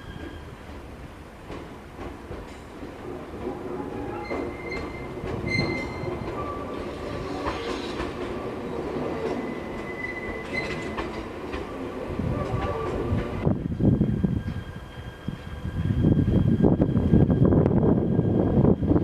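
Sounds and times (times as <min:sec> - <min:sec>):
train wheels rumbling: 0:00.0 - 0:19.0
high-pitched wheel squeals: 0:03.9 - 0:08.0, 0:09.3 - 0:11.0.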